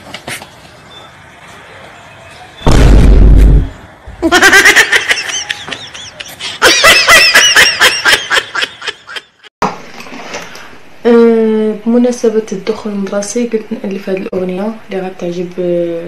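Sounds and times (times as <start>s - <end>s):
deep boom: 2.7s - 3.9s
high-pitched laughter: 4.2s - 9.5s.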